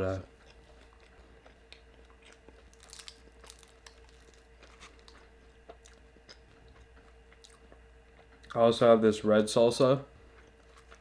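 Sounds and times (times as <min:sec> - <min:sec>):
crunchy chewing: 0:00.3 - 0:08.6, 0:10.2 - 0:11.0.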